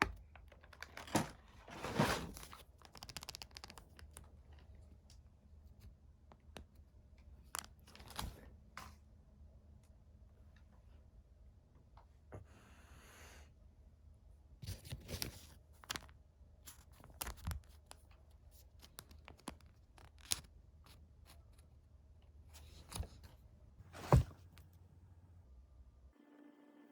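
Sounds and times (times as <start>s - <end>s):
packaging crinkling and clicking: 2.3s - 4.6s.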